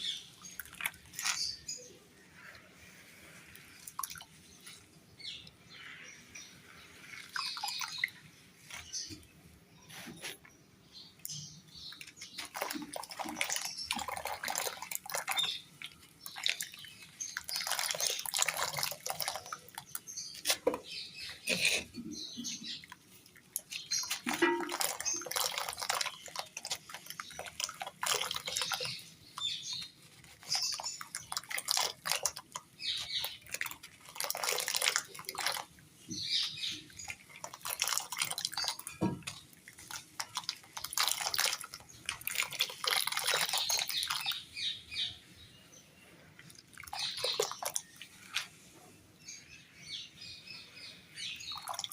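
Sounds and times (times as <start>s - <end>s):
material crunching in water: 0.0s - 1.9s, 11.7s - 44.5s, 46.4s - 48.5s
dripping water: 0.0s - 5.7s, 6.4s - 9.4s, 11.2s - 45.0s, 46.3s - 48.6s, 50.8s - 51.9s.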